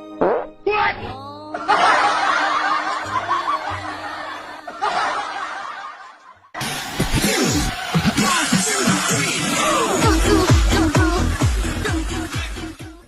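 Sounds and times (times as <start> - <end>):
people laughing: 1.5 - 10.4
electronic music with heavy beat: 6.9 - 13.0.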